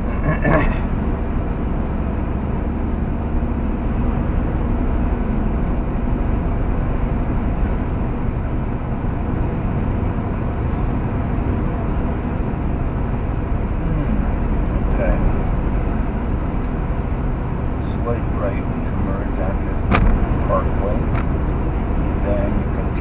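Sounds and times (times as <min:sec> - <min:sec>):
road and engine noise in car: 0:00.0 - 0:23.0.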